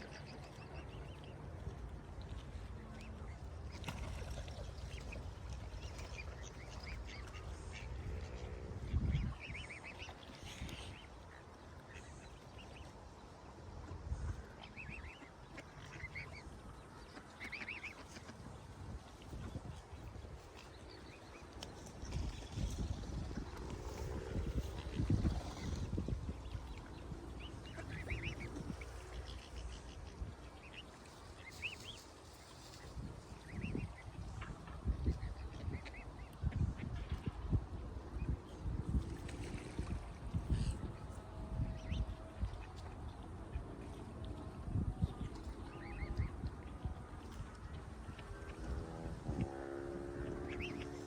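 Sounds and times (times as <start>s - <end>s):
steady low rumble: 0.0s - 49.5s.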